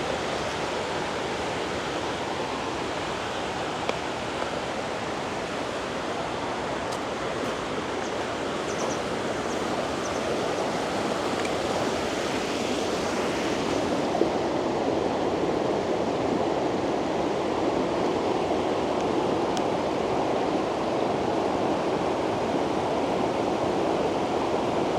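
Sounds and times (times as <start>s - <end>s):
river water rushing over rocks: 0.0s - 22.9s.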